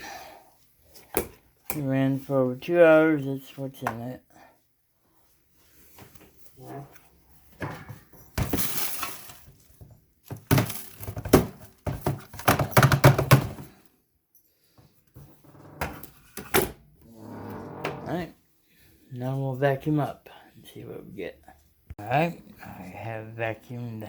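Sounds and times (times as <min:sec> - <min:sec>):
hard objects knocking and clattering: 0:10.3 - 0:13.7.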